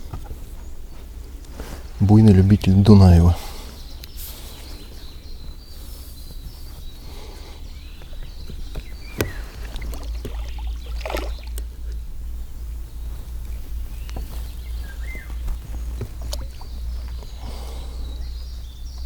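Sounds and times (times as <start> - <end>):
water splashing around boat: 7.0 - 18.3.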